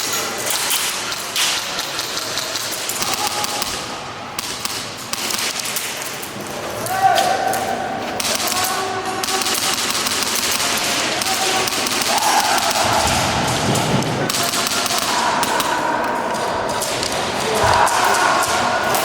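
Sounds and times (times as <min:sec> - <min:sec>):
airsoft guns firing: 0:00.6 - 0:06.2, 0:08.2 - 0:19.0.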